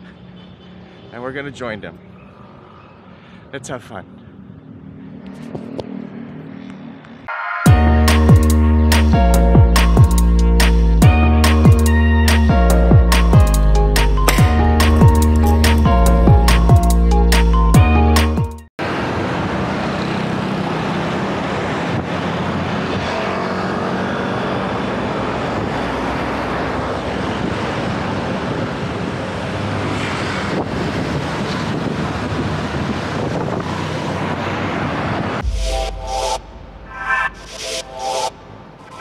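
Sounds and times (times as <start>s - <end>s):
road noise from bicycle: 0.0s - 7.3s, 18.8s - 35.4s
wind rush on microphone: 24.6s - 35.5s.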